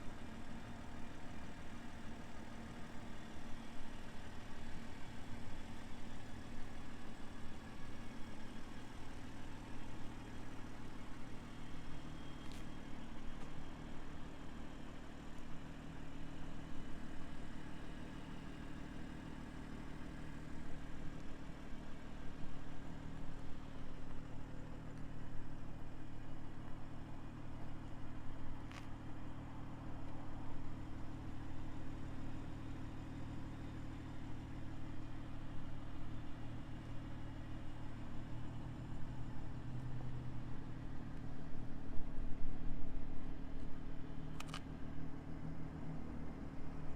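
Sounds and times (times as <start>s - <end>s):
car engine idling: 0.0s - 46.9s
sharp click: 44.3s - 44.7s.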